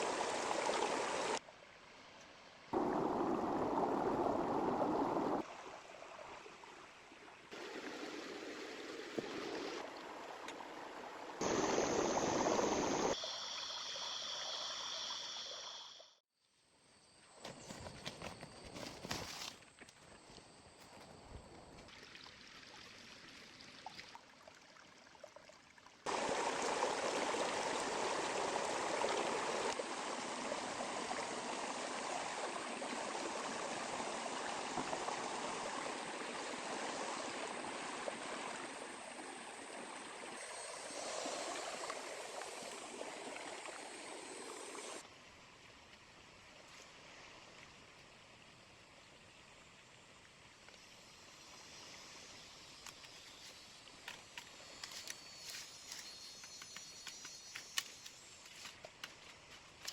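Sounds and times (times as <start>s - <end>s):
river flowing: 0.0s - 13.2s, 26.0s - 48.6s.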